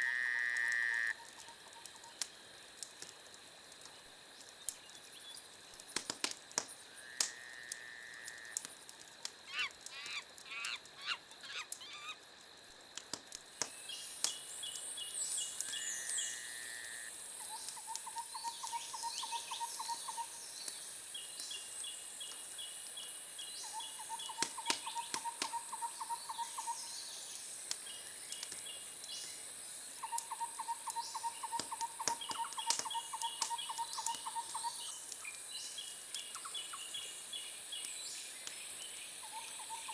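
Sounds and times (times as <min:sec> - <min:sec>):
wood fire crackling and popping: 0:00.5 - 0:16.2, 0:17.1 - 0:23.0, 0:24.0 - 0:39.6
animal chirps: 0:09.5 - 0:12.2.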